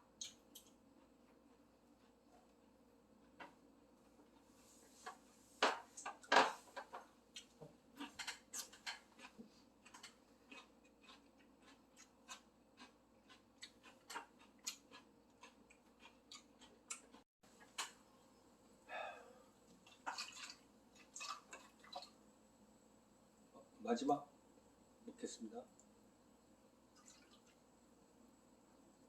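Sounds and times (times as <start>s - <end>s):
person chewing: 7.3s - 17.2s.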